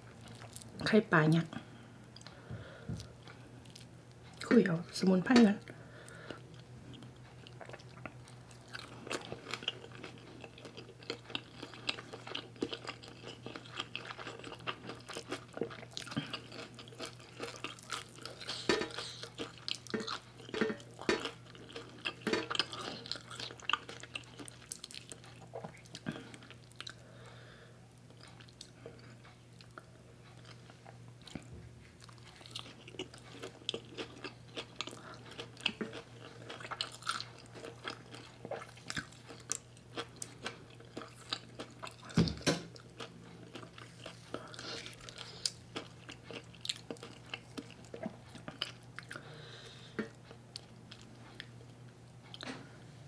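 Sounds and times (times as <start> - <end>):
steady low hum: 0.0 - 53.0
wet chewing with clicks and smacks: 28.0 - 49.3.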